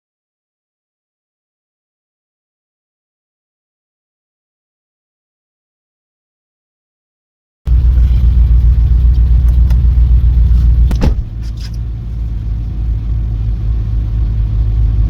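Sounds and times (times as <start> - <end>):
low vehicle engine rumble: 7.7 - 15.0.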